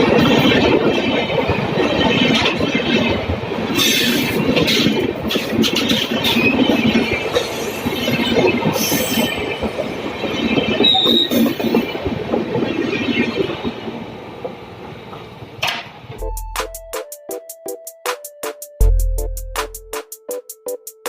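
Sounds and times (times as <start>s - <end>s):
wheels clattering on rails: 0.0s - 16.2s
wheel squeal: 10.8s - 11.8s.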